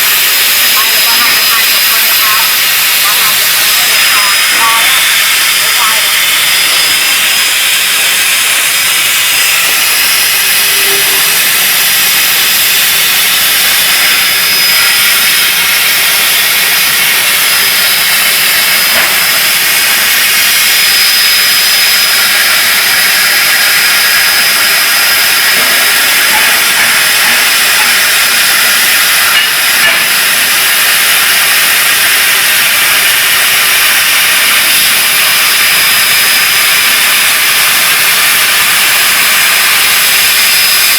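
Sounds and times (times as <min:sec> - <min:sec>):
thin high tone: 0:00.0 - 0:29.6
plasma cutter hissing: 0:00.0 - 0:40.9.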